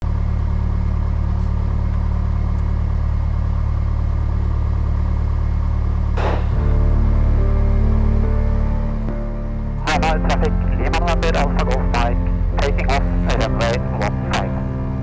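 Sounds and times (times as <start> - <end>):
airplane piston engine droning: 0.4 - 15.0
music: 6.2 - 15.0.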